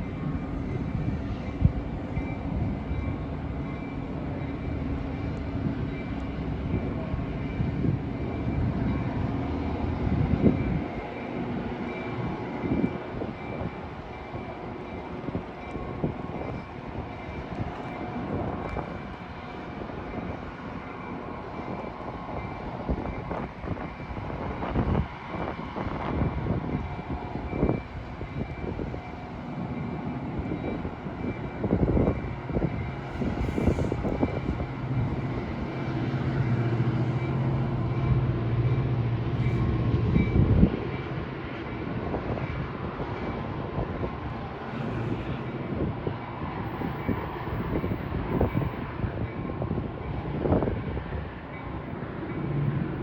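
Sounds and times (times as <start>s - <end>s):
diesel locomotive engine rumble: 0.0s - 53.0s
train clanks and knocks: 0.0s - 53.0s.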